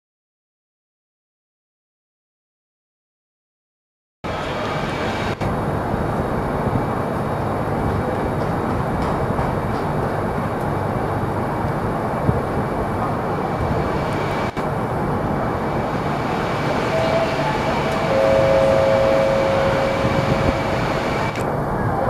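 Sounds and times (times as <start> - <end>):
train wheels rumbling on rails: 4.3 - 22.0
high-pitched tone: 16.7 - 21.4.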